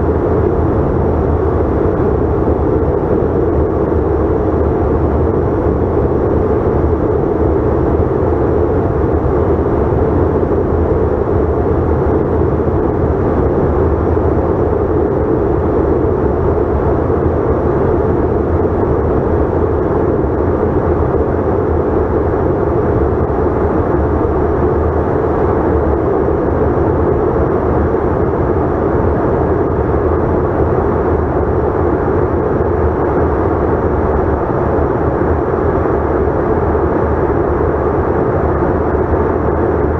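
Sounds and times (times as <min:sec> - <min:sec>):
jet cabin engine hum: 0:00.0 - 0:39.9.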